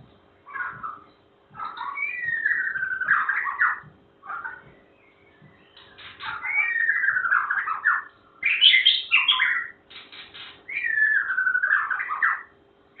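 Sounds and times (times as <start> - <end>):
bird singing: 0.4 - 13.0.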